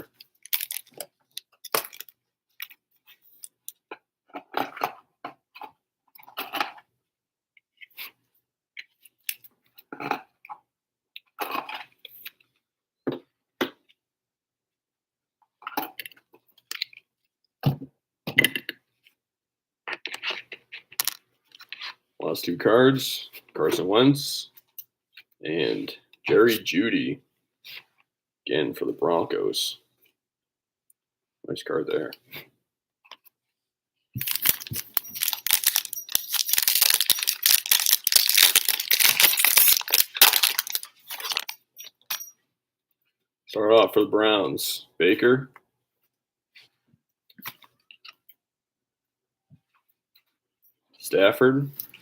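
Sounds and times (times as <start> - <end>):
cards and plastic sleeves rustling: 0.0 - 3.6, 34.2 - 42.3
plastic wrapper tearing and crinkling: 0.4 - 1.0, 34.2 - 41.6.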